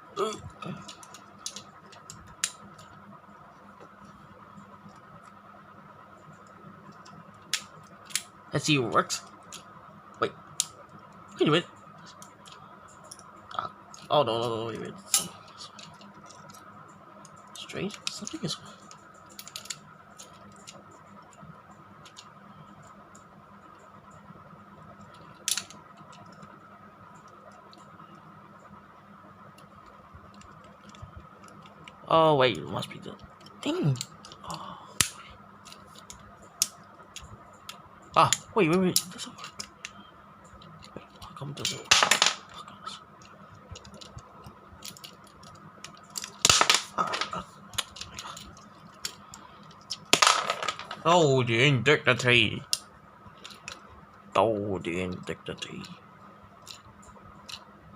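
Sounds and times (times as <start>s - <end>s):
faint steady hum: 0.0s - 57.9s
plastic toy clicks and rattles: 17.2s - 20.8s, 25.1s - 26.5s, 40.6s - 51.1s.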